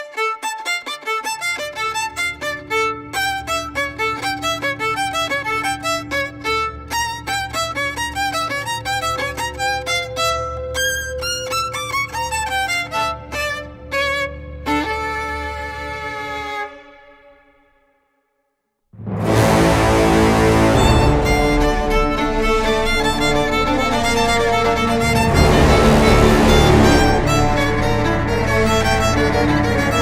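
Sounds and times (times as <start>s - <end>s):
fast violin melody: 0.0s - 17.4s, 19.0s - 30.0s
low drone: 19.0s - 30.0s.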